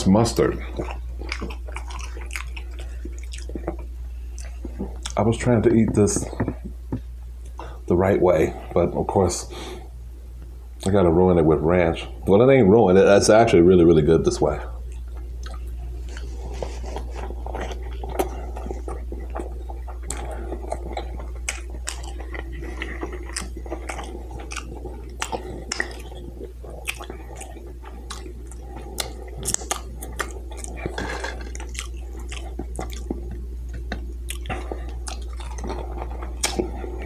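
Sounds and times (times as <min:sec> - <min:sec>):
steady low hum: 0:00.0 - 0:37.0
person chewing food: 0:00.3 - 0:07.7, 0:14.8 - 0:37.0.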